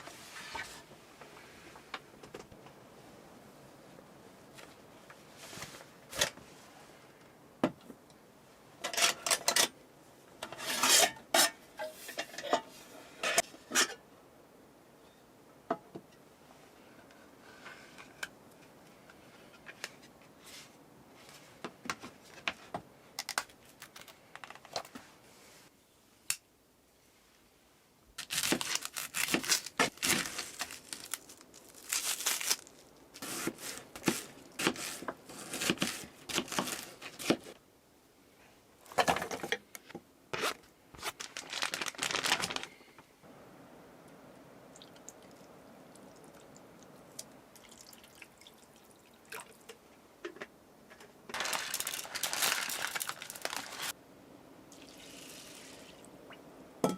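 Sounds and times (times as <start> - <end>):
rustling and crinkling: 4.5 - 8.0, 17.0 - 25.7, 28.2 - 37.6, 38.8 - 43.1, 50.4 - 54.0.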